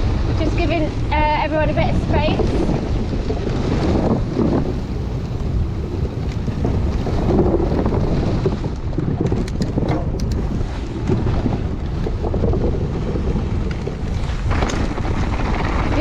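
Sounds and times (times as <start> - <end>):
bike rolling on rocky trail: 0.0 - 16.0
wind buffeting microphone: 0.0 - 16.0
sharp clicks: 9.2 - 10.5.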